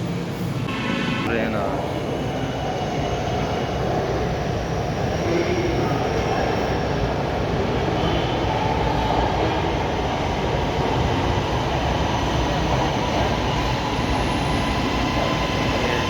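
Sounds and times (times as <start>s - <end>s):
metro train wheels rumbling: 0.0s - 16.0s.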